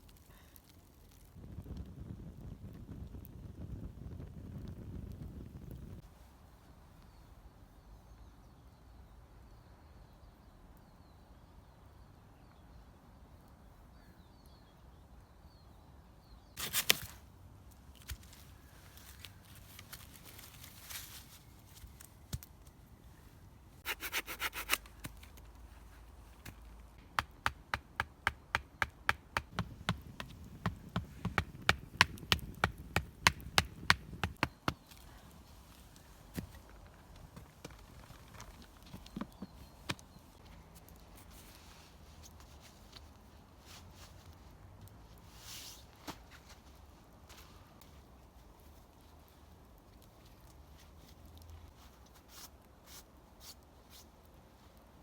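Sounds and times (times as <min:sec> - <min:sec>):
small birds chirping: 0:38.0 - 0:40.7.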